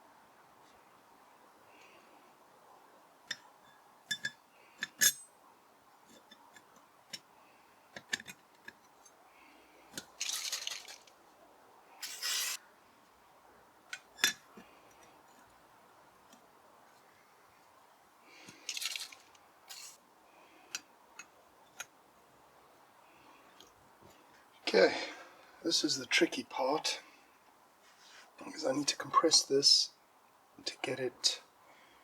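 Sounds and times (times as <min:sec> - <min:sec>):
small metal parts clinking: 0:04.1 - 0:05.2, 0:10.0 - 0:11.1, 0:12.0 - 0:12.6, 0:18.5 - 0:20.0.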